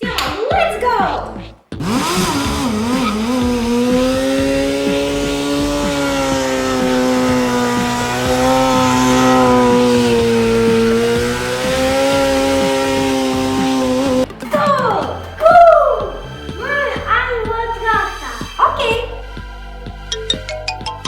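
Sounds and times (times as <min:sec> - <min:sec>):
motorcycle engine revving high: 0:01.7 - 0:14.3.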